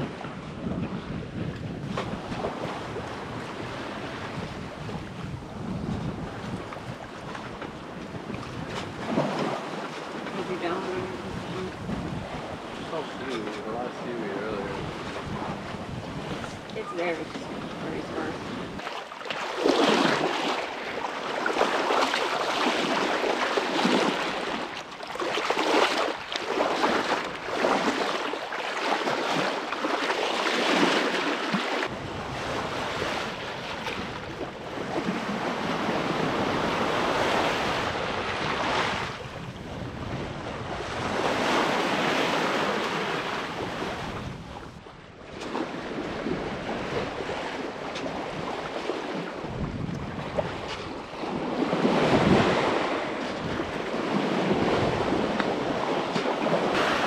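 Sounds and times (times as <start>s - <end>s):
wind on microphone: 0.0s - 18.9s, 31.8s - 57.0s
water splashing along boat hull: 0.0s - 57.0s.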